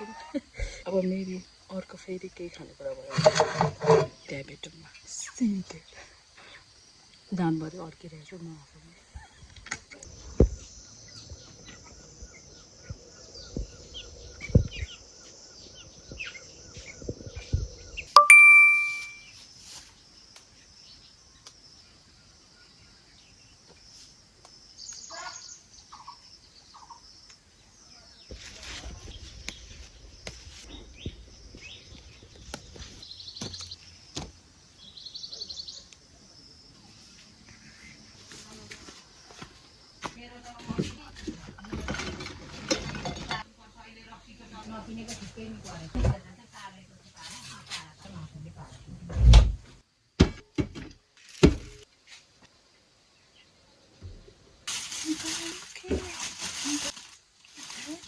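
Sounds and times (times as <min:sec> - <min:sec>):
bird-like chirps: 0:09.2 - 0:19.4, 0:24.8 - 0:40.1
loud bright ding: 0:18.2 - 0:19.3
high insect drone: 0:19.0 - 0:40.2.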